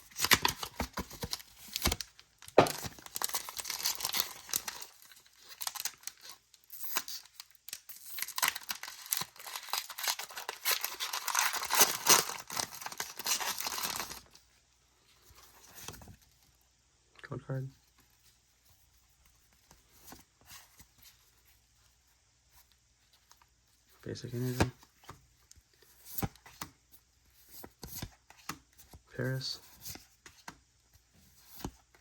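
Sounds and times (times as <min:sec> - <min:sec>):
foil wrapper tearing and crinkling: 0:00.1 - 0:14.3.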